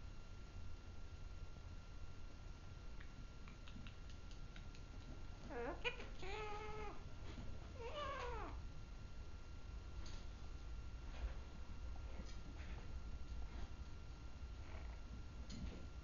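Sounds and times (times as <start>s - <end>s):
parrot pitched calls: 5.5s - 7.0s.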